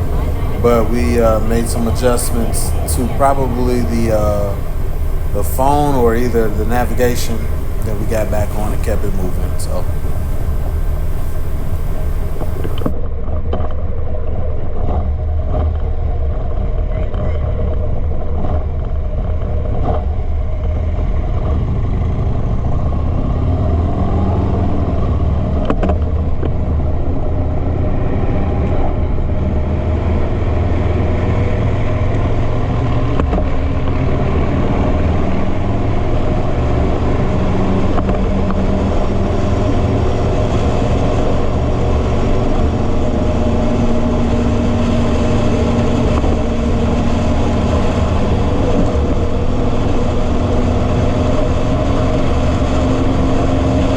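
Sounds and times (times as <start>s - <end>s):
motorcycle engine running: 0.0s - 12.9s
road noise rushing: 0.0s - 12.9s.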